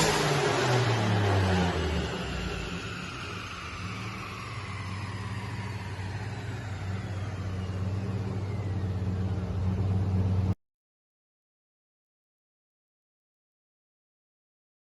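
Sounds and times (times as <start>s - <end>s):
engine idling: 0.0s - 10.5s
turbo whine sliding down: 0.0s - 10.6s.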